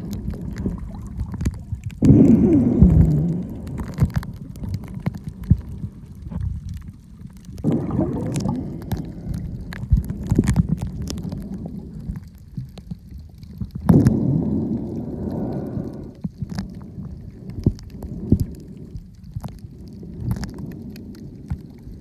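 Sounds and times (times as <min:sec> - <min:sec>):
water gurgling surges: 0:00.0 - 0:04.9, 0:07.5 - 0:09.8
underwater water rumble: 0:00.0 - 0:22.0.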